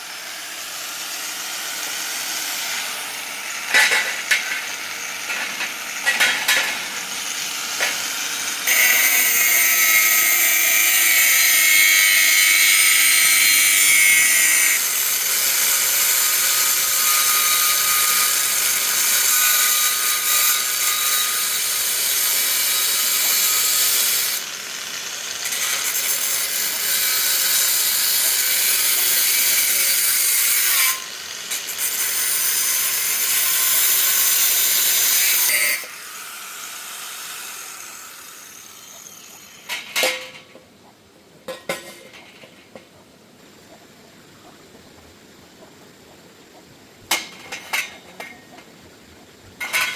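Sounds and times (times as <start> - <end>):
power tool whining on steel: 0.0 - 40.0.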